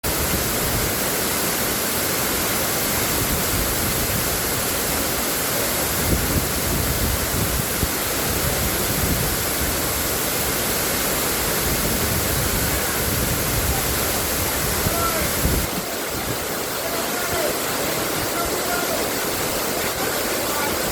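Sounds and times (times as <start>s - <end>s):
rushing water: 0.0s - 20.9s.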